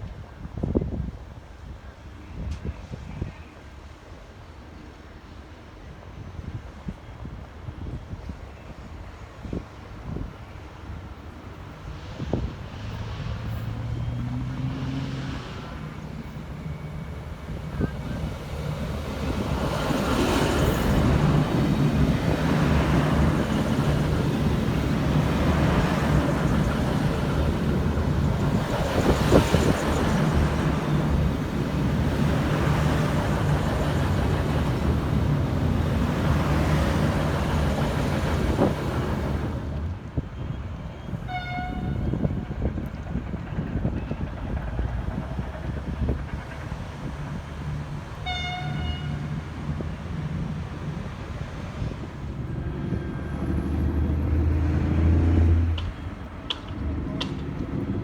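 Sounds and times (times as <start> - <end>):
train passing: 3.6 - 58.0
train horn note: 41.3 - 42.3, 48.2 - 49.3.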